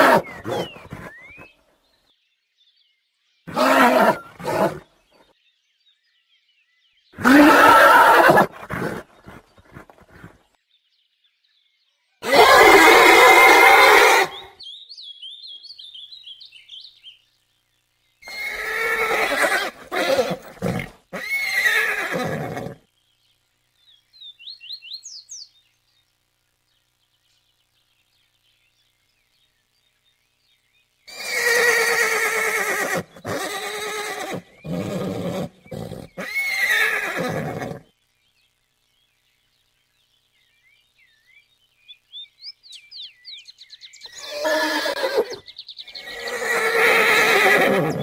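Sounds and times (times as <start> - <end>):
horse neighing: 0.0 - 1.5, 3.5 - 4.8, 7.2 - 10.3, 12.2 - 14.5, 18.2 - 22.8, 31.1 - 37.8, 44.1 - 48.0.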